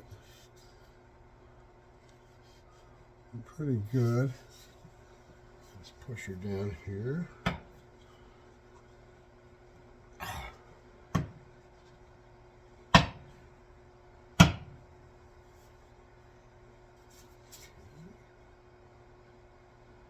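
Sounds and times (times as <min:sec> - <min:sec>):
axe head knocked onto handle: 0:14.4 - 0:14.8.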